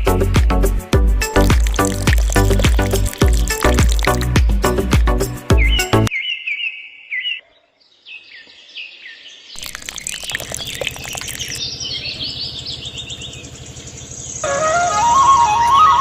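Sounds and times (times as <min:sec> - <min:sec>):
birds chirping: 0:05.5 - 0:14.5
thick chirping with clicks: 0:09.6 - 0:14.4.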